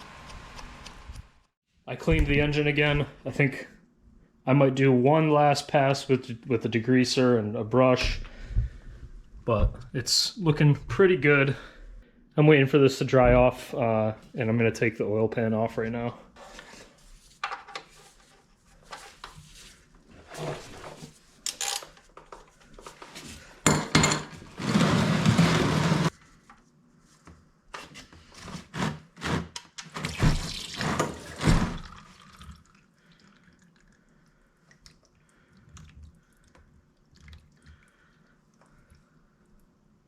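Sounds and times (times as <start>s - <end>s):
tools clanking and knocking: 23.7s - 26.1s
water dripping: 31.8s - 39.1s.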